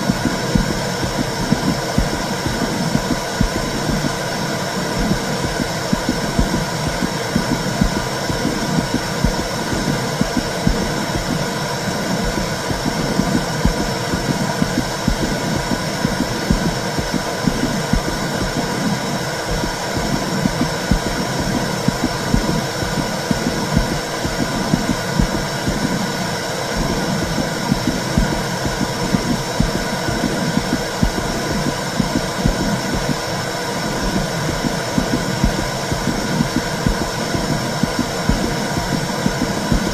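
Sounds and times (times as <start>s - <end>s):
low throbbing pulse: 0.0s - 39.9s.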